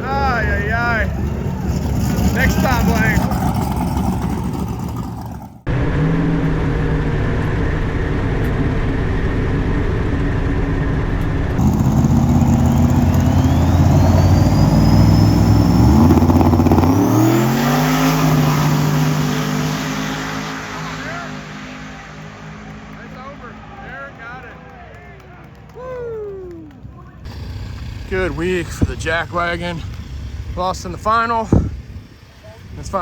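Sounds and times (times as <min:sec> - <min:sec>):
race car engine accelerating: 0:00.0 - 0:25.8.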